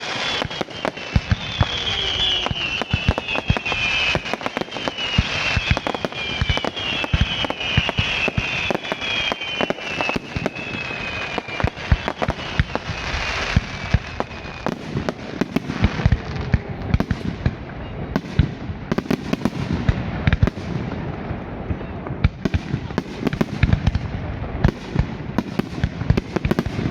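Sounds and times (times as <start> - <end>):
firework whistles falling in pitch: 0.0 - 14.9
fireworks bangs and crackling: 0.0 - 26.9.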